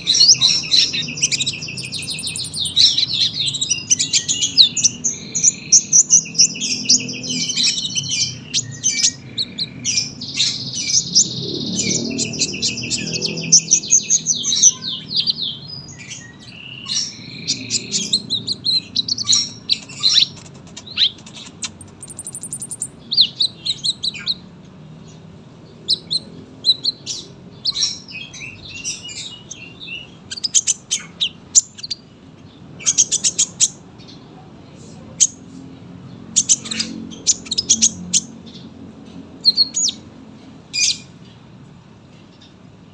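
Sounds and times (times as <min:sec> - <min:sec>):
bird singing high chirps and trills: 0:00.0 - 0:42.9.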